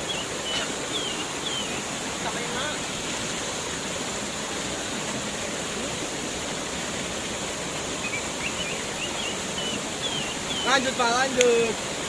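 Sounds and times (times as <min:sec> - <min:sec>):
faint high wavering chirps: 0:00.0 - 0:02.8, 0:08.0 - 0:11.0
waterfall rushing: 0:00.0 - 0:12.0.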